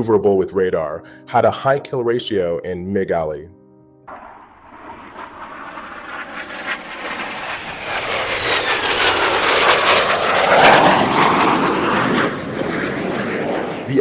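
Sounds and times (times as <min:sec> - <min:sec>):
whine falling in pitch: 0:04.0 - 0:14.0
jet engine roar: 0:04.1 - 0:14.0.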